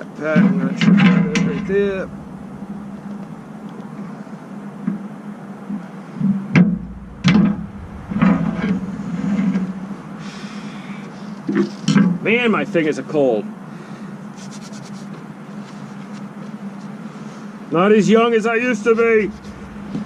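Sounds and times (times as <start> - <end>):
engine idling: 0.8 - 4.4, 6.6 - 11.5, 18.8 - 20.0.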